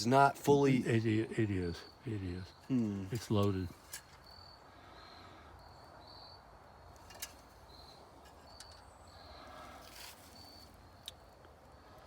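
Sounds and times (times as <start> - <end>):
brief rustle: 9.8 - 10.6.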